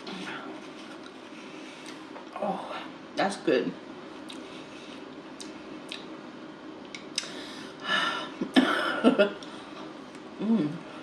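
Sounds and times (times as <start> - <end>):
chewing food: 5.1 - 6.1
mouth clicks: 6.9 - 7.3.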